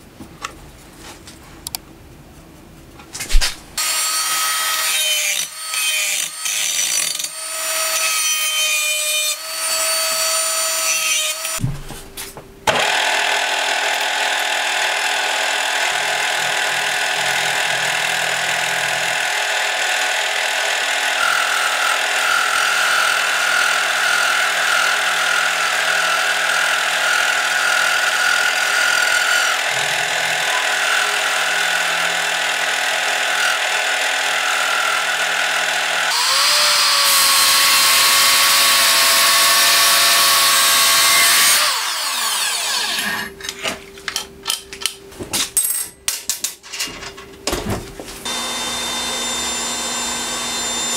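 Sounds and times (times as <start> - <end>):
power tool deburring steel: 3.4 - 11.6, 12.7 - 43.3, 48.2 - 50.9
drill press boring steel: 12.7 - 43.3, 48.3 - 50.9.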